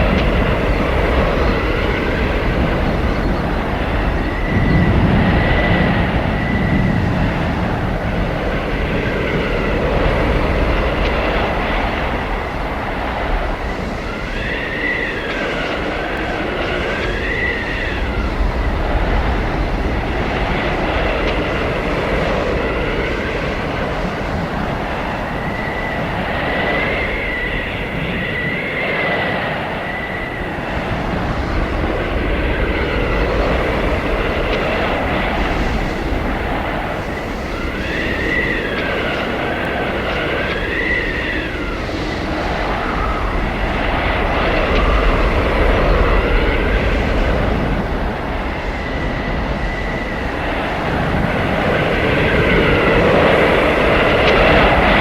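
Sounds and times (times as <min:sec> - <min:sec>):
high whistling wind howls: 0:00.0 - 0:55.0
howling blizzard wind: 0:00.0 - 0:55.0.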